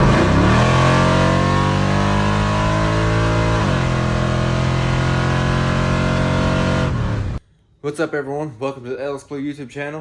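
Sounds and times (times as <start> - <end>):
pickup truck engine revving: 0.0 - 7.4.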